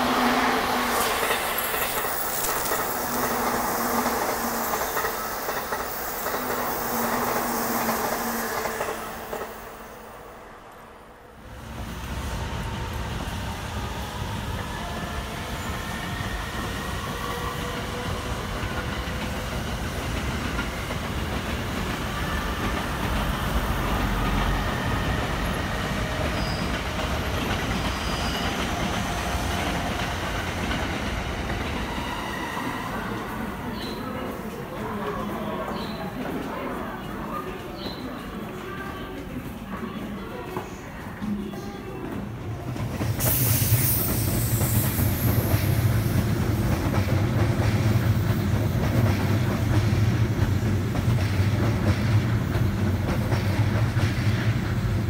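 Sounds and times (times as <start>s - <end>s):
train wheels rushing on rail: 0.0s - 55.0s
high hiss: 43.1s - 46.7s.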